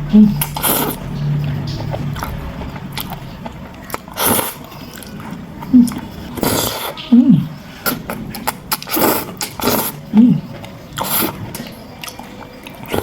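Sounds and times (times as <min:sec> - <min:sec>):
person chewing jelly candy: 0:00.0 - 0:13.0.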